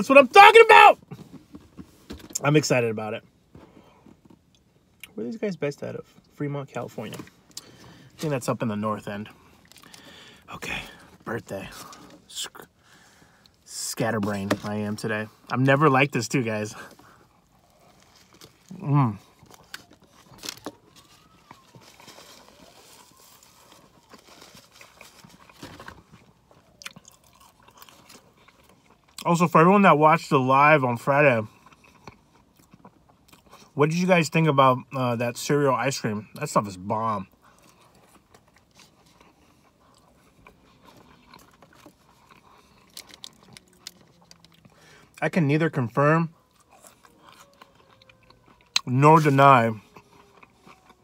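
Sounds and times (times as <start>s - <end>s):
close-up chewing and lip smacks: 16.9s - 29.3s, 31.5s - 33.8s, 37.3s - 45.2s, 46.3s - 51.0s.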